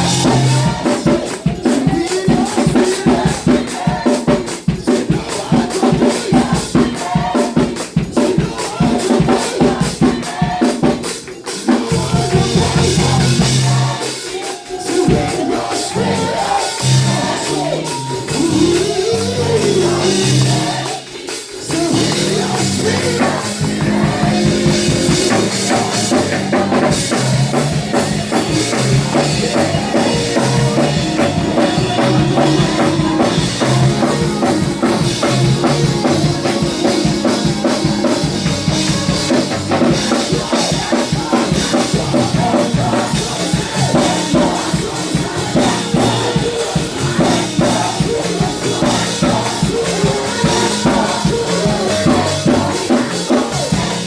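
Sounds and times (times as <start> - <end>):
drum kit fast beat: 0.0 - 54.0
gospel band playing: 0.0 - 54.0.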